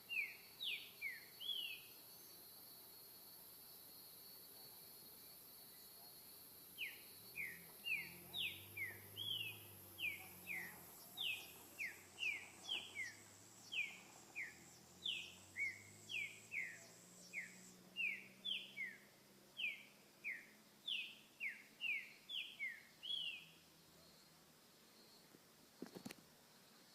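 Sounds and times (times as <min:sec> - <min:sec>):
bird singing whistled notes: 0:00.0 - 0:02.4, 0:06.8 - 0:24.2
high insect-like tone: 0:05.1 - 0:19.0.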